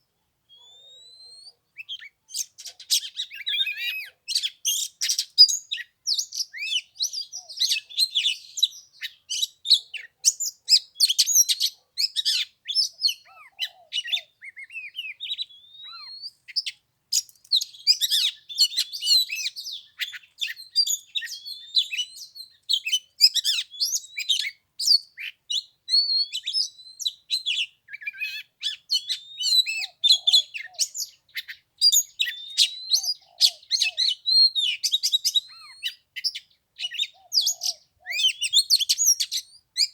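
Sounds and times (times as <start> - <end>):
bird singing chirps and whistles: 0.5 - 39.9.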